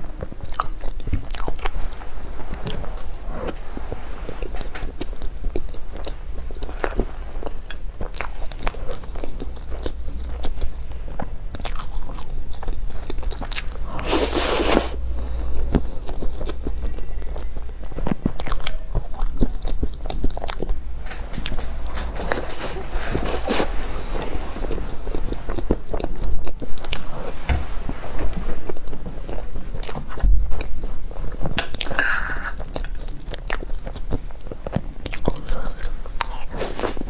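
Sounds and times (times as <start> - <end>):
low hum: 2.2 - 26.0
chewing crispy cheesecake crunches: 4.4 - 15.1, 16.0 - 24.3.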